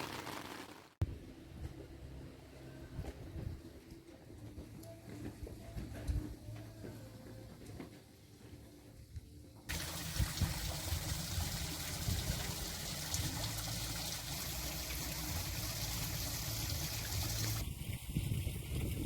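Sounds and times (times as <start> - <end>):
water trickling: 9.7 - 17.6.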